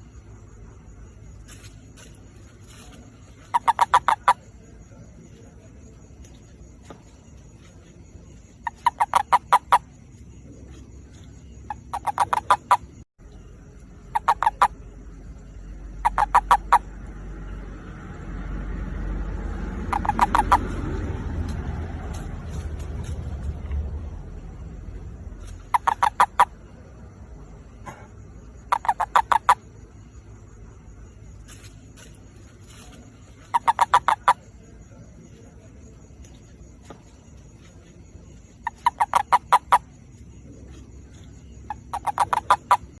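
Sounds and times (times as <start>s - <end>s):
toad croaking: 1.4s - 7.3s, 8.3s - 13.0s, 13.6s - 17.7s, 19.0s - 21.3s, 25.2s - 30.3s, 31.4s - 43.0s.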